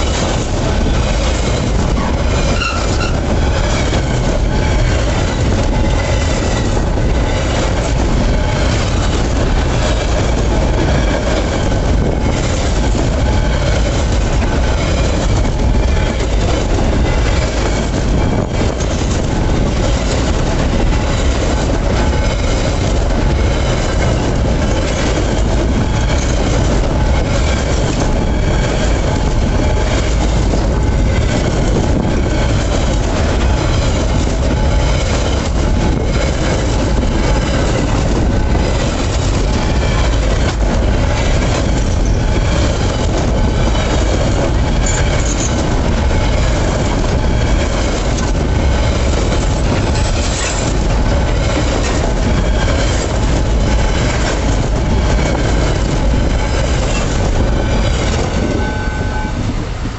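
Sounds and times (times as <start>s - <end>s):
freight train wagons rolling: 0.0s - 59.9s
high squeal from train wheels: 1.9s - 4.0s, 44.8s - 45.6s, 57.8s - 59.9s.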